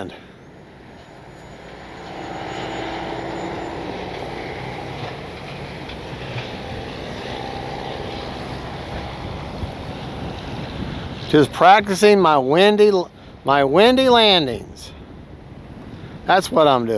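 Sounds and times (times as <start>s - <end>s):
wind buffeting microphone: 0.0s - 16.9s
model airplane motor whine: 0.6s - 11.2s.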